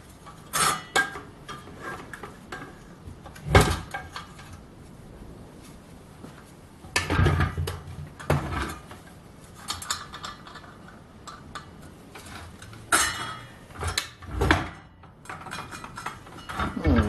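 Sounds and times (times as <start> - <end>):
metal clanks and rattles of saw: 0.3 - 2.8, 11.6 - 16.8.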